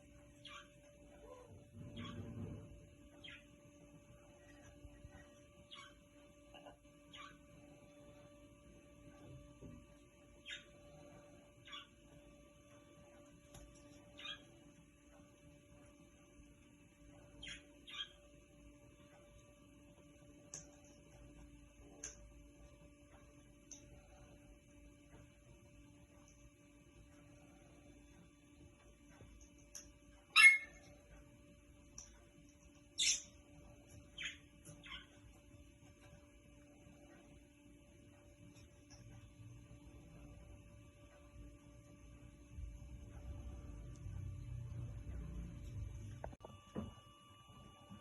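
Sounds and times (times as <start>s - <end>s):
low electrical hum: 0.0s - 48.0s
faint bird chirps: 0.2s - 8.4s, 10.2s - 12.3s, 13.8s - 14.7s, 17.1s - 19.3s, 32.8s - 35.4s.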